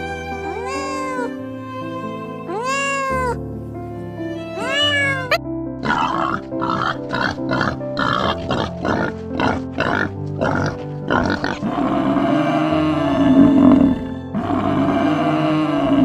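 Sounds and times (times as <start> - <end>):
cat meowing: 0.0 - 3.4, 4.3 - 6.2
background music: 0.0 - 16.0
animal grunting calls: 5.8 - 16.0.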